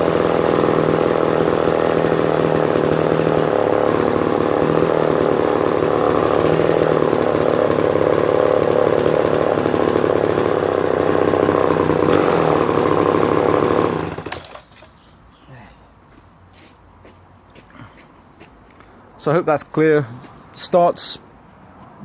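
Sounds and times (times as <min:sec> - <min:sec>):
chainsaw engine running: 0:00.0 - 0:14.7.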